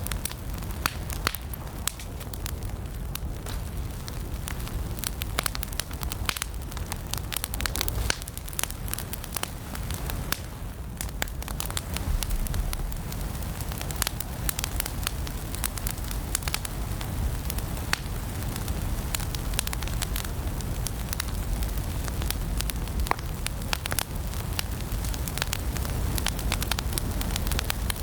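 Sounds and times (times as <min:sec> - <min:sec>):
low rush of flames: 0:00.0 - 0:28.0
wood fire crackling and popping: 0:00.0 - 0:28.0.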